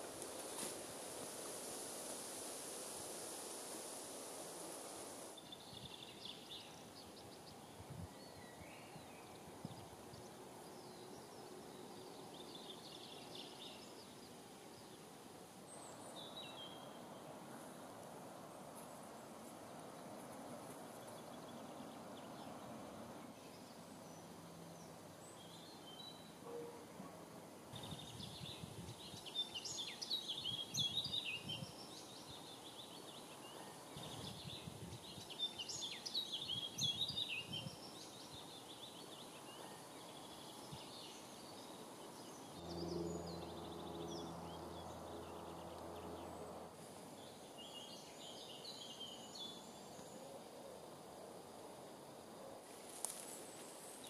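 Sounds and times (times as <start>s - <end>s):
songbirds singing: 5.4s - 18.0s, 18.8s - 50.9s
faint low hum: 42.1s - 54.0s.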